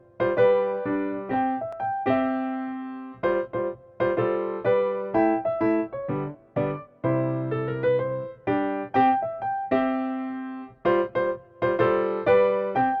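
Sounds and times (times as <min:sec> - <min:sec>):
gentle piano tune: 0:00.0 - 0:13.0.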